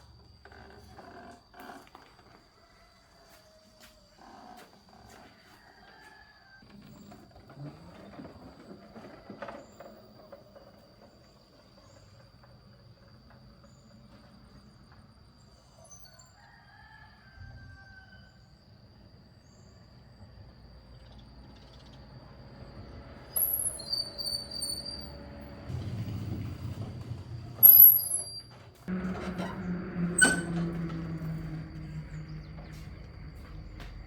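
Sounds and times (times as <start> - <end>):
faint rooster crowing: 2.2 - 7.3, 15.6 - 20.4, 28.9 - 34.0
low hum: 24.4 - 34.0.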